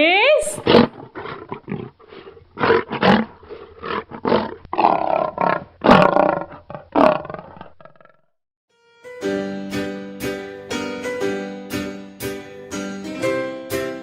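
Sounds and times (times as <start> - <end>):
lion roaring: 0.6 - 8.2.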